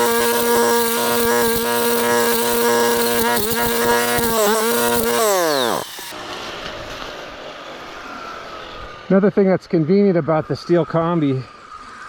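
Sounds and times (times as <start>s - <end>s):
brush cutter engine running: 0.0s - 6.2s.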